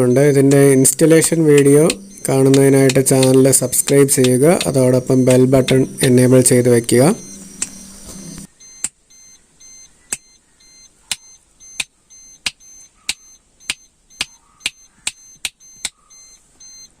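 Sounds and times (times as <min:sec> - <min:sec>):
high electronic beep tones: 0:00.0 - 0:17.0
sharp clicks: 0:00.4 - 0:06.2, 0:07.2 - 0:09.0, 0:11.1 - 0:16.1.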